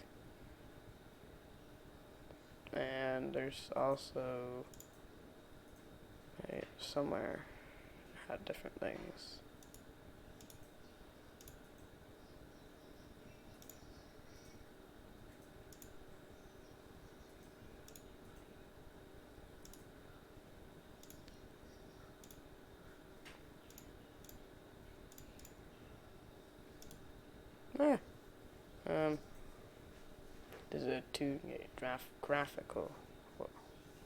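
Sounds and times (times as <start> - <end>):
low room hum: 0.0 - 34.0
faint computer clicks: 4.7 - 5.1, 9.6 - 12.0, 13.5 - 14.6, 15.3 - 16.0, 17.2 - 18.5, 19.6 - 19.9, 21.0 - 21.5, 22.2 - 22.5, 23.2 - 24.4, 25.1 - 25.6, 26.8 - 27.1.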